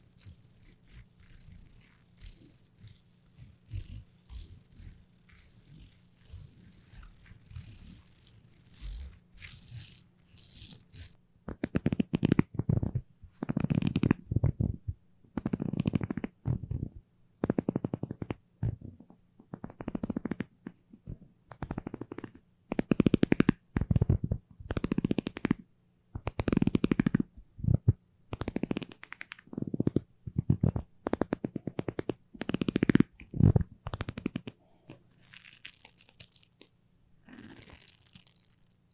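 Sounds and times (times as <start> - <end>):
sticky peeling crackle: 0.0 - 11.2.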